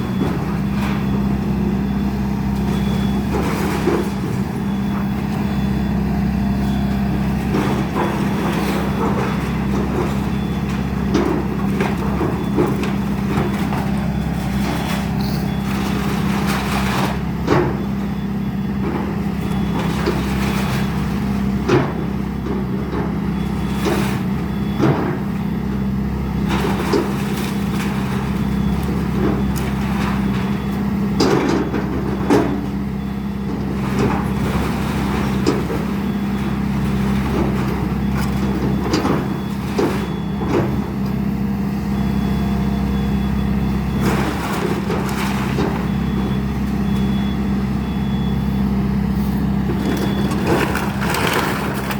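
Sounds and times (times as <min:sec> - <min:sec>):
diesel engine running: 0:00.0 - 0:51.9
structure cracking and thumping: 0:49.6 - 0:51.9.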